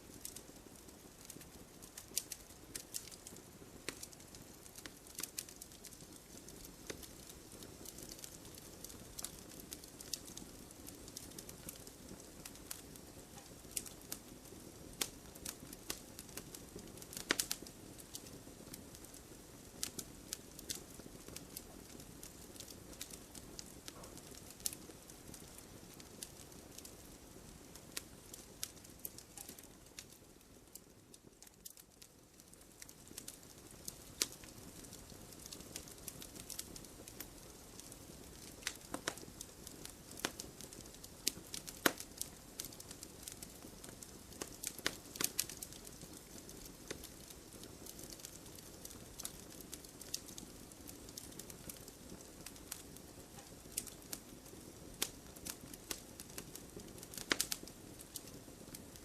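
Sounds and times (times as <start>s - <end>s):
low rustle of flames: 0.0s - 59.0s
wood fire crackling and popping: 0.0s - 59.0s.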